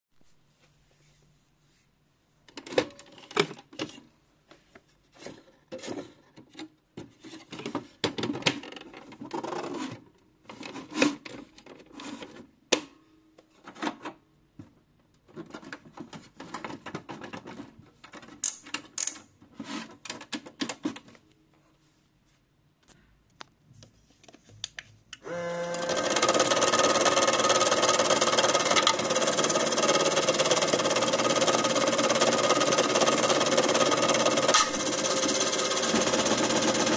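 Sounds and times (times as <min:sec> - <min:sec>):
washing machine running: 0:25.3 - 0:36.9.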